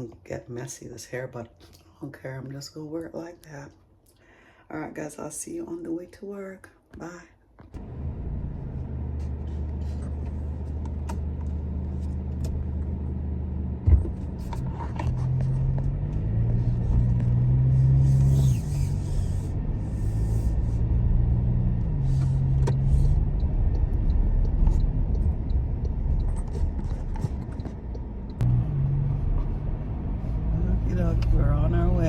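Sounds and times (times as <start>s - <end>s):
truck engine accelerating: 7.8s - 32.0s.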